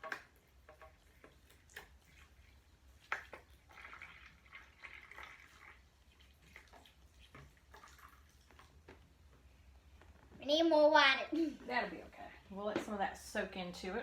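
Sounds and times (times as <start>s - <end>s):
water drips: 0.0s - 9.4s
water trickling and splashing: 0.0s - 9.4s.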